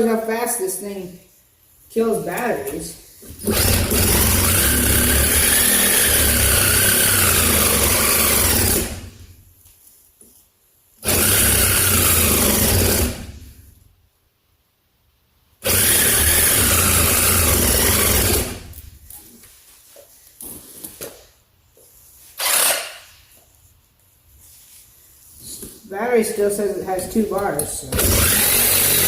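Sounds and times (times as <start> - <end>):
reciprocating saw cutting metal: 3.4 - 9.2, 11.0 - 13.4, 15.6 - 18.8, 22.4 - 23.1, 27.9 - 29.0.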